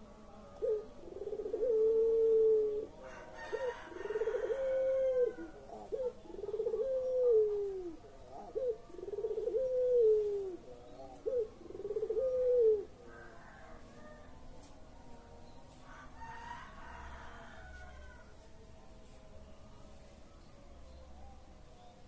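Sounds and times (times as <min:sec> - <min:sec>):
dove cooing: 0:00.0 - 0:14.7.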